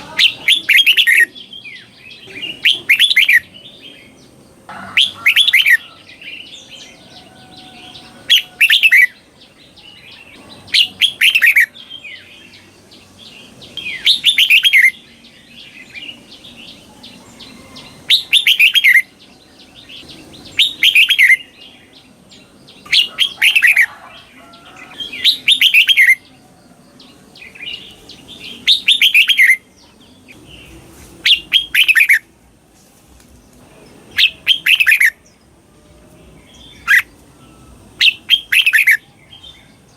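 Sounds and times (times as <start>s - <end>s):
bulbul singing song phrase: 0.0s - 7.1s
soft chattering bird calls: 0.0s - 32.3s, 33.2s - 35.4s, 36.5s - 39.9s.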